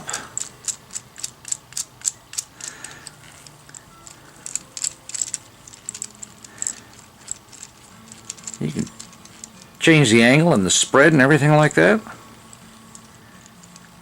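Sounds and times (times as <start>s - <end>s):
plastic clamp joints clicking: 0.4s - 9.6s.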